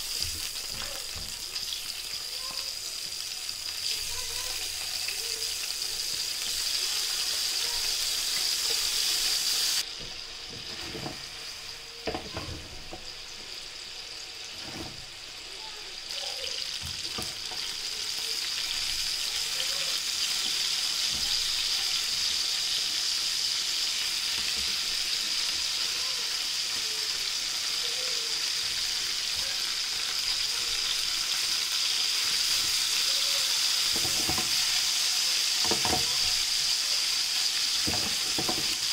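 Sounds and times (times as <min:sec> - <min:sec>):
chicken sizzling in hot oil: 0:00.0 - 0:38.9
light knocks in frying pan: 0:37.8 - 0:38.8.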